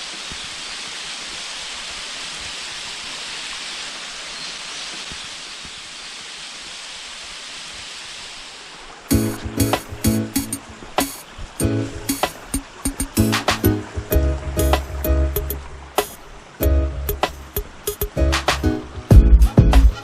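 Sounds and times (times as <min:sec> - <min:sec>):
waterfall rushing: 0:00.0 - 0:20.0
music: 0:09.1 - 0:20.0.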